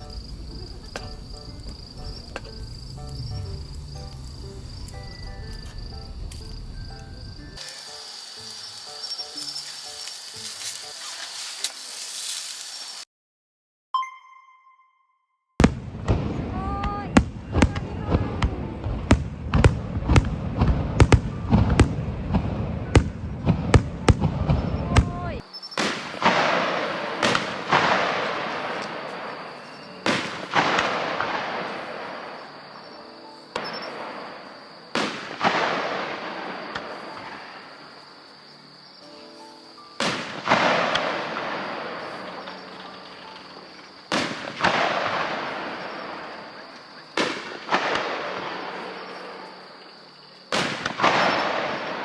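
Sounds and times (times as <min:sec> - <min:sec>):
crackling fizz of fireworks: 0:00.0 - 0:13.1, 0:15.6 - 0:52.0
firework bangs: 0:07.6 - 0:13.0, 0:15.6 - 0:38.3, 0:40.0 - 0:52.0.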